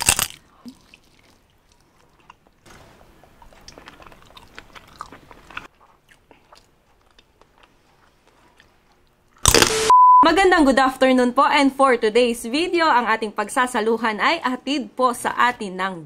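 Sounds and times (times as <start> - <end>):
person chewing crisp food: 0.0 - 9.7.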